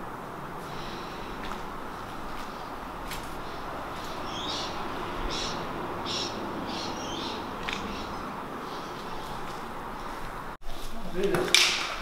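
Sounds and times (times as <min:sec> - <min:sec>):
steady outdoor noise: 0:00.0 - 0:12.0
bird calling: 0:00.7 - 0:10.2.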